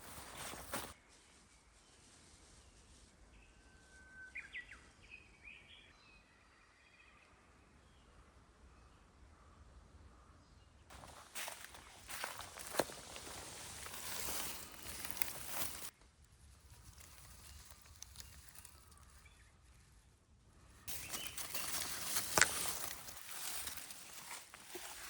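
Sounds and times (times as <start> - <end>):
footsteps through dry leaves: 0.0 - 1.0, 10.9 - 15.9, 16.6 - 19.3, 20.9 - 25.0.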